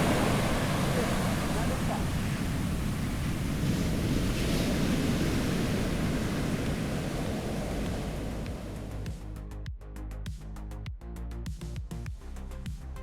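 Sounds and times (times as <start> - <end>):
surf breaking on beach: 0.0 - 9.2
wind on microphone: 0.0 - 9.3.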